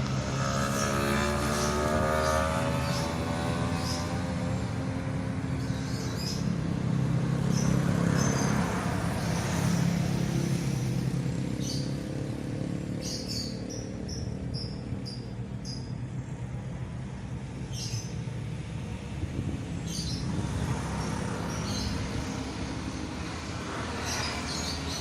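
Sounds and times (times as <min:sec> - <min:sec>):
low engine hum: 0:00.0 - 0:25.0
bird chirping: 0:13.0 - 0:16.0
wind rushing through trees: 0:16.8 - 0:25.0.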